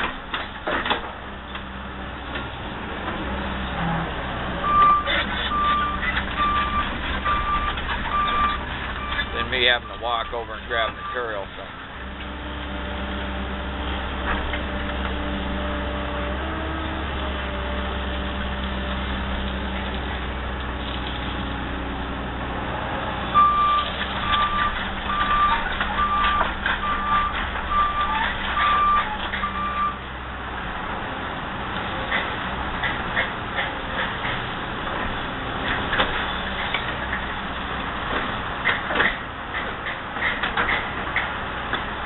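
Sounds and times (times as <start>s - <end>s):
knocks and clatter: 0.0s - 1.7s, 4.8s - 11.0s, 23.8s - 29.8s, 31.8s - 42.0s
excavator diesel engine: 0.0s - 42.0s
back-up alarm beeping: 4.6s - 11.5s, 23.4s - 30.0s.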